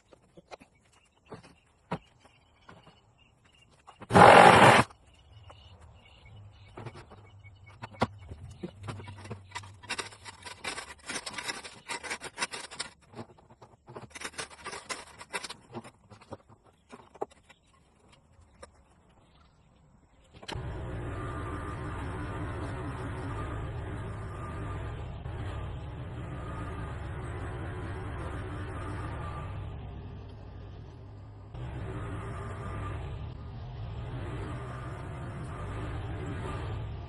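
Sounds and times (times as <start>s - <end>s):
digging scraping and clattering: 0.0s - 5.0s, 6.6s - 19.3s.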